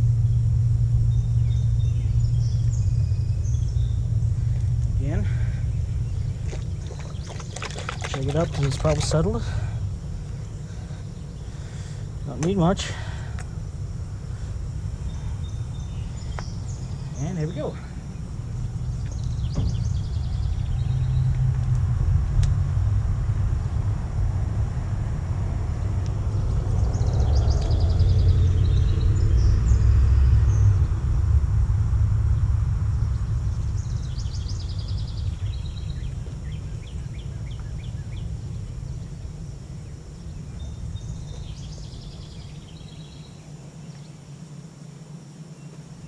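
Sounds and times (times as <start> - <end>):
outdoor low rumble: 0.0 - 46.0
songbird chirping: 0.1 - 21.5, 33.0 - 46.0.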